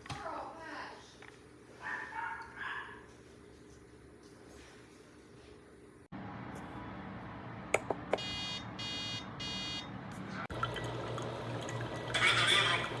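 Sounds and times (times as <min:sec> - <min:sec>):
button clicks: 0:07.8 - 0:08.3
short high beeps: 0:08.2 - 0:09.8
coffee maker humming: 0:10.5 - 0:13.0.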